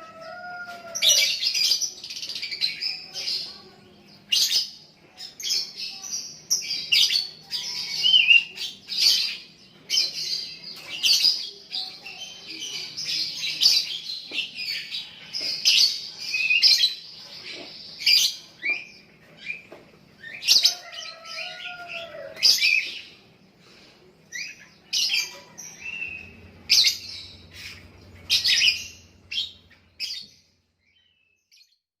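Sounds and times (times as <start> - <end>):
bird chirping and chattering: 1.1 - 21.7.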